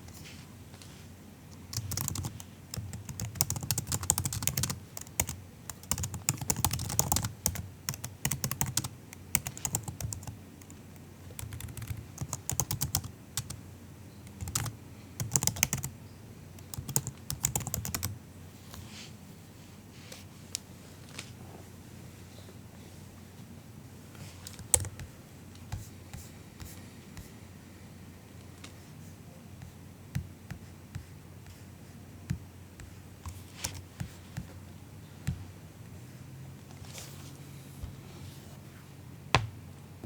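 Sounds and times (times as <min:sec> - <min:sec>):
laptop keyboard typing: 0:01.6 - 0:13.6, 0:14.2 - 0:15.9, 0:16.6 - 0:18.2, 0:24.5 - 0:25.1, 0:32.8 - 0:34.5.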